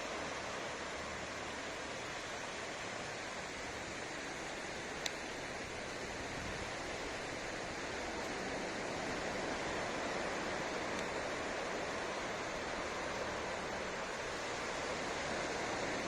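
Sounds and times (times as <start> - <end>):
ocean surf washing onto beach: 0.0 - 16.0.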